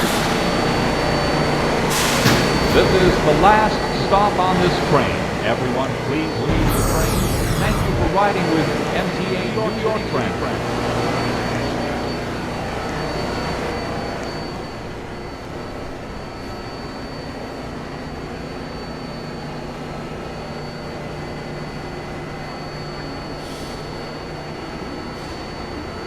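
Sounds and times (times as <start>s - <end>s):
thin high whine: 6.5s - 10.5s.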